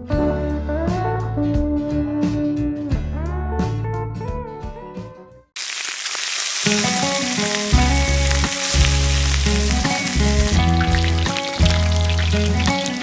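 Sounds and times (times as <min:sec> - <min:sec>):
background music with bass: 0:00.0 - 0:05.2, 0:07.1 - 0:13.0
meat sizzling in hot oil: 0:05.6 - 0:13.0.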